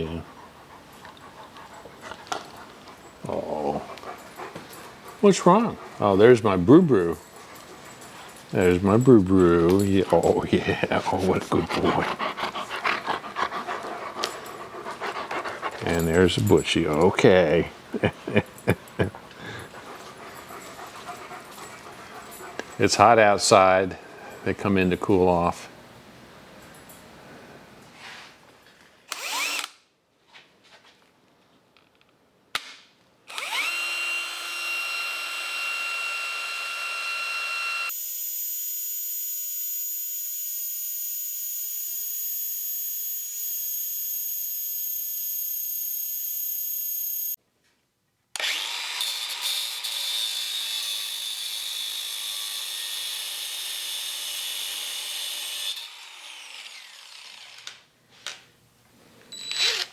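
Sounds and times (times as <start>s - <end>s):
power drill whining: 29.1s - 29.7s, 33.3s - 47.4s, 48.4s - 50.0s, 59.3s - 59.9s.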